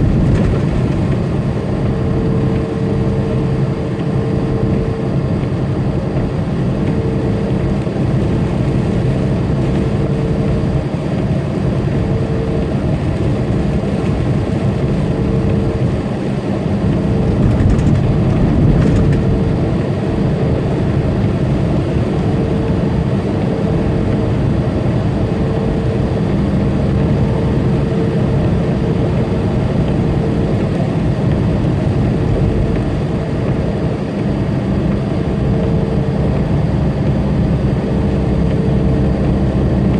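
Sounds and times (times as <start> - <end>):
tyre and road noise: 0.0 - 2.4, 16.8 - 20.2
diesel engine droning: 0.0 - 39.9.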